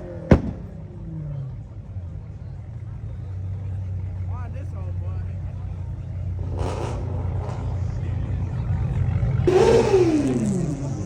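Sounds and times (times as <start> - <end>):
car engine revving: 6.0 - 11.0.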